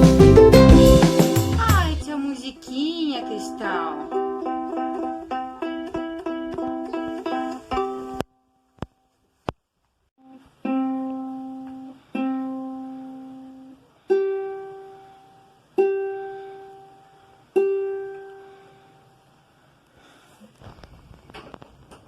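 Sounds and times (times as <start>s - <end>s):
acoustic guitar plucked notes: 0.0s - 2.0s.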